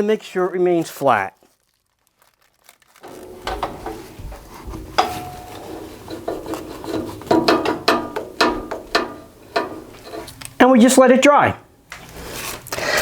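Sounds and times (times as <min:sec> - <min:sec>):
clamps clicking and knocking on wood: 0:04.9 - 0:10.2.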